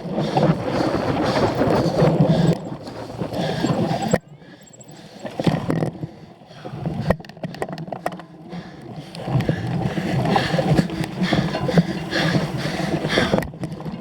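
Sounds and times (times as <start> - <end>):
tyres rushing: 0.0 - 5.7
wind on microphone: 0.0 - 7.7.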